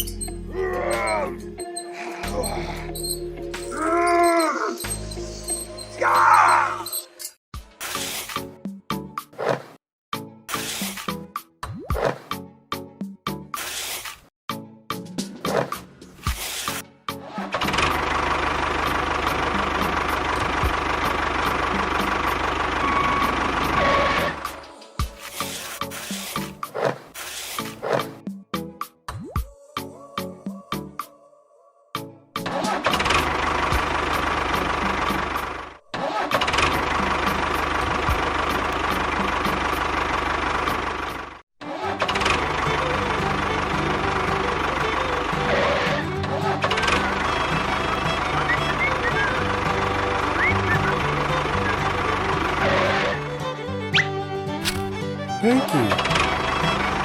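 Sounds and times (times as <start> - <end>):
engine running with knock: 17.5 - 25.2, 32.6 - 41.4, 42.0 - 53.3, 56.0 - 57.0
small motor rattling and whining: 32.9 - 53.6.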